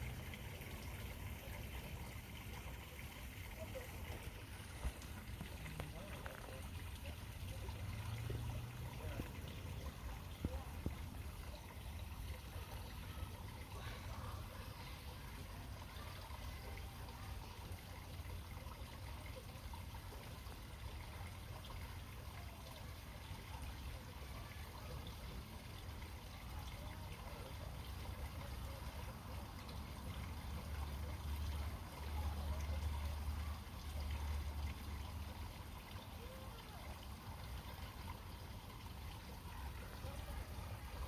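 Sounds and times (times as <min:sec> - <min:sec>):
faint trickling water: 0:00.0 - 0:41.0.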